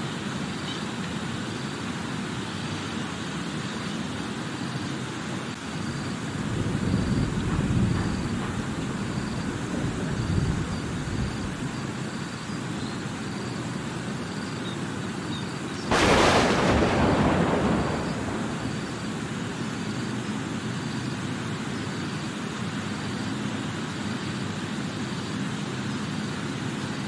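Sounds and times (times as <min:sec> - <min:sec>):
steady rain: 0:00.0 - 0:27.0
loud thunderclap: 0:06.4 - 0:11.8, 0:15.9 - 0:19.9.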